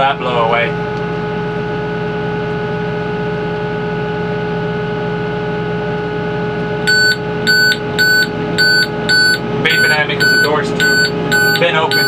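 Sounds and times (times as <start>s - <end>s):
tractor diesel engine running: 6.5s - 12.0s
high warning beeps: 6.9s - 12.0s.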